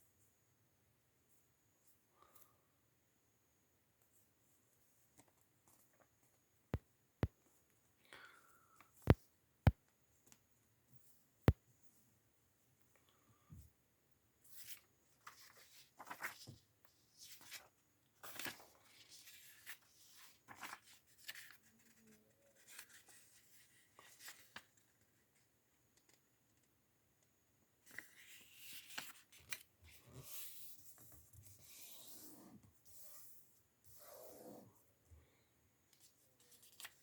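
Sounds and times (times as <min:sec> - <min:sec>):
paper rustling and scraping: 0:14.5 - 0:16.6, 0:17.2 - 0:24.7.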